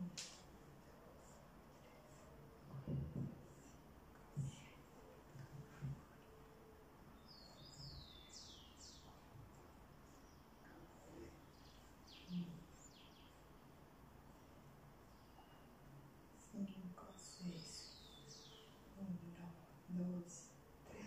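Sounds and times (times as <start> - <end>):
faint bird chirps: 5.8 - 9.4, 10.0 - 13.6, 14.4 - 19.4.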